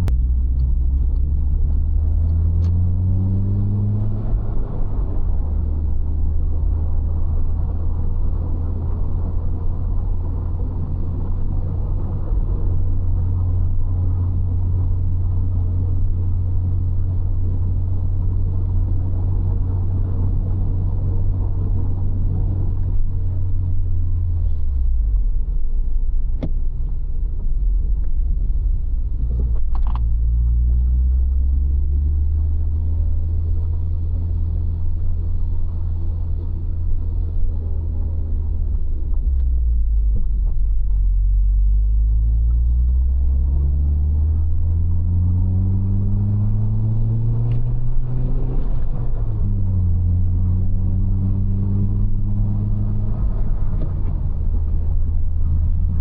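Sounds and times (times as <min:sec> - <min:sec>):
car engine with road rumble: 0:00.0 - 0:56.0.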